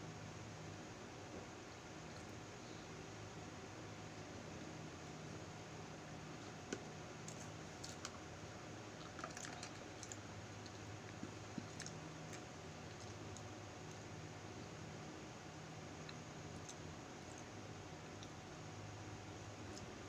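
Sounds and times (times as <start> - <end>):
electric fan humming: 0.0 - 20.0.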